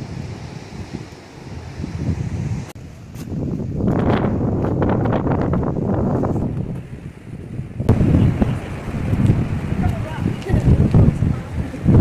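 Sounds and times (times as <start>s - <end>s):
surf washing on rocky shore: 0.0s - 12.0s
wind buffeting microphone: 0.0s - 12.0s.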